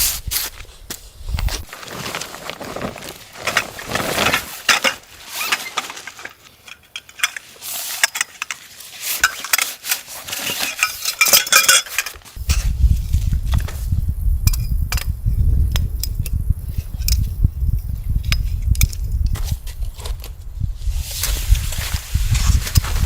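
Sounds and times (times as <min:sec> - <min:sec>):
metal objects clinking: 0:02.6 - 0:12.2.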